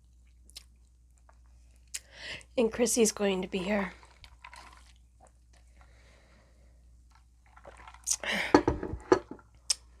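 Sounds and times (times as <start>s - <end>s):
chewing food: 0.1s - 2.1s, 3.7s - 6.0s, 7.1s - 8.3s.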